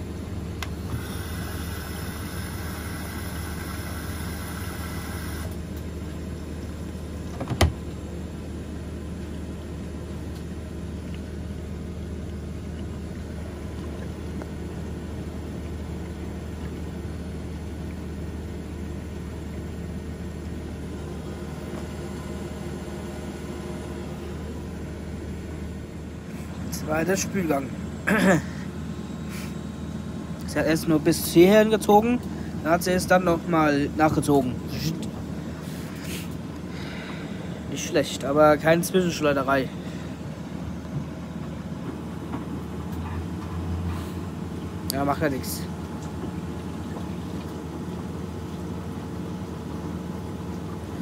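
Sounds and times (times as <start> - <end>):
washing machine motor hum: 0.0 - 51.0
hiss: 0.9 - 5.6.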